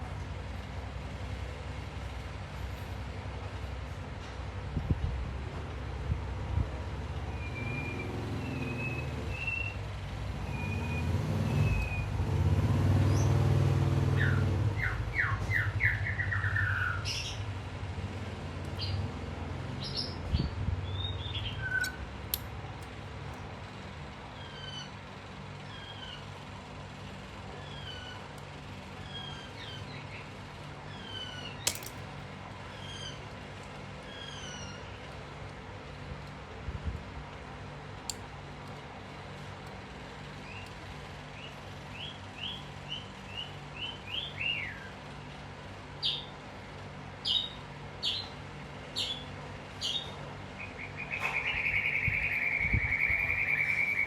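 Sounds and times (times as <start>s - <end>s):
small birds chirping: 14.1s - 17.6s, 18.7s - 22.1s, 27.5s - 31.9s, 32.6s - 35.2s, 40.2s - 45.3s, 47.2s - 54.0s
sharp clicks: 31.7s - 32.0s.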